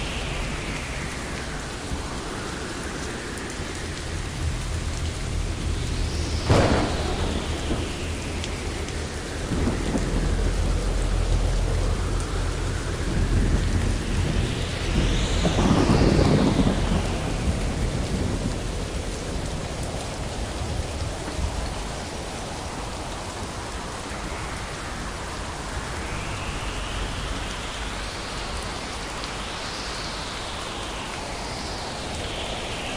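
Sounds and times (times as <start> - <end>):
heavy rain: 0.0 - 32.9
rolling thunder: 4.2 - 22.6
sharp thunder crack: 6.2 - 10.9, 13.2 - 18.6.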